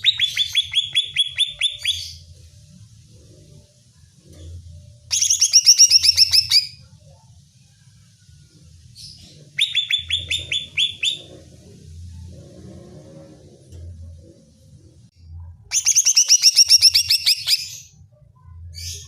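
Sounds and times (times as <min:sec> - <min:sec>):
bird singing: 0:00.0 - 0:02.3, 0:05.1 - 0:06.8, 0:09.0 - 0:11.6, 0:15.7 - 0:19.0.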